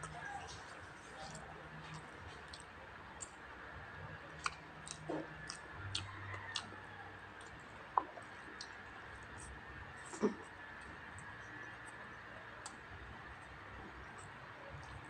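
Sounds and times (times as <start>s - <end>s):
chewing with mouth clicks: 0.0s - 3.4s, 4.3s - 12.0s
lip smacks: 4.3s - 6.8s.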